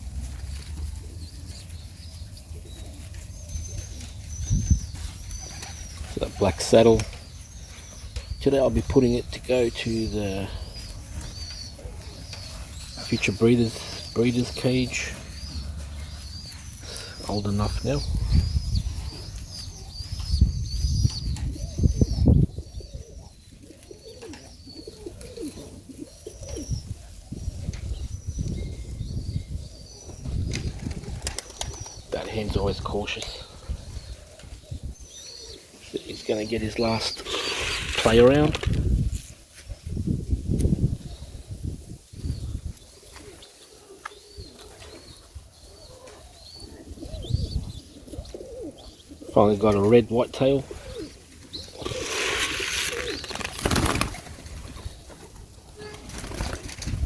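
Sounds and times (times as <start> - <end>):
pigeons cooing: 0.0 - 39.0, 42.2 - 57.0
pigeon wings flapping: 30.5 - 32.0, 51.8 - 54.8, 55.8 - 57.0.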